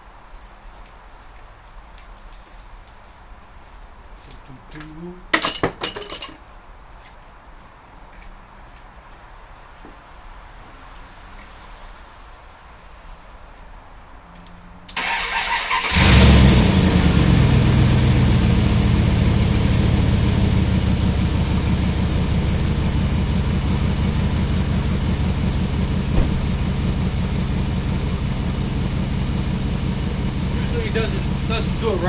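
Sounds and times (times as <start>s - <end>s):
pickup engine starting and idling: 14.8s - 32.0s.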